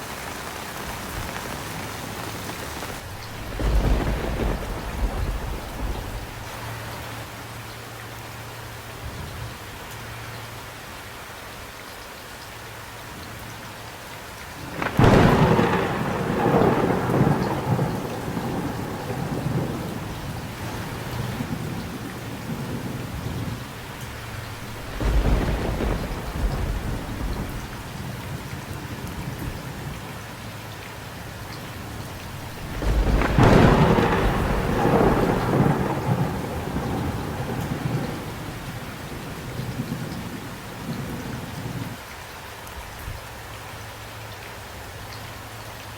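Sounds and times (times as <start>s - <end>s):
steady rain: 0.0s - 45.9s
thunder claps rumbling: 0.6s - 6.9s, 14.6s - 30.1s, 31.2s - 42.0s.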